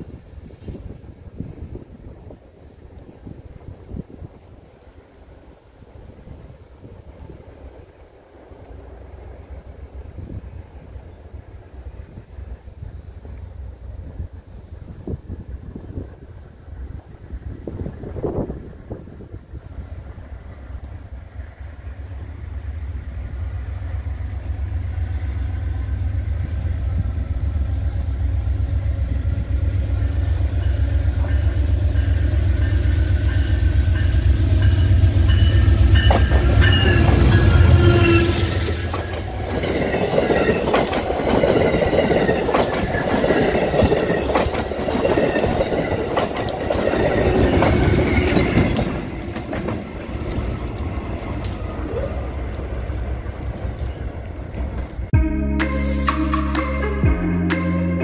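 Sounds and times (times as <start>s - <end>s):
diesel locomotive engine rumble: 0.0s - 58.0s
wheels clacking over rail joints: 34.6s - 55.1s.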